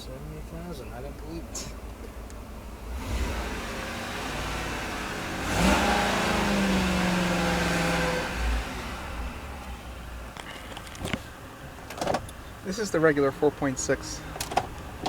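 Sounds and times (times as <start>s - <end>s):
truck engine revving: 0.0s - 11.1s.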